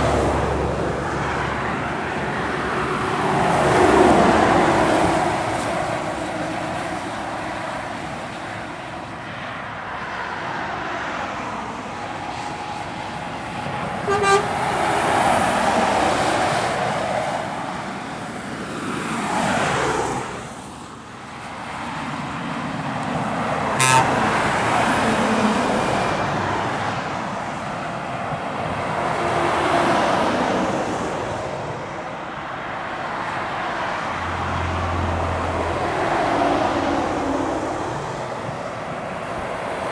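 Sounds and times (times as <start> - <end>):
heavy lorries climbing hill: 0.0 - 39.9
horn toots: 14.0 - 15.1, 23.6 - 25.0.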